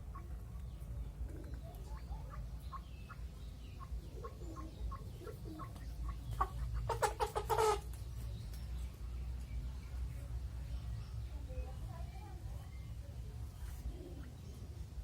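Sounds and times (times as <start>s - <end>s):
chickens clucking: 0.0s - 10.3s.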